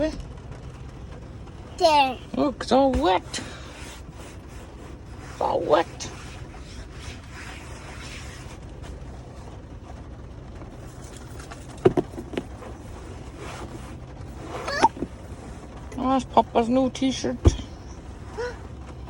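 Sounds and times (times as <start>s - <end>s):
truck cab hum and hiss: 0.0s - 19.0s.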